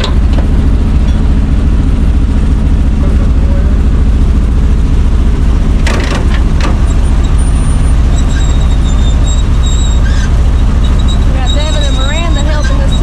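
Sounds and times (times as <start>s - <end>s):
metal clanks: 0.0s - 1.4s, 5.8s - 7.3s
truck engine idling: 0.0s - 13.0s.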